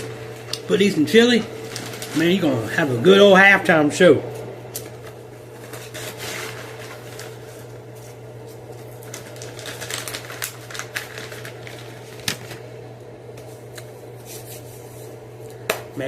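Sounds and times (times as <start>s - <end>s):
clothes dryer humming: 0.0s - 16.0s
freeze-dried fruit crackling: 0.5s - 3.2s, 8.6s - 12.7s.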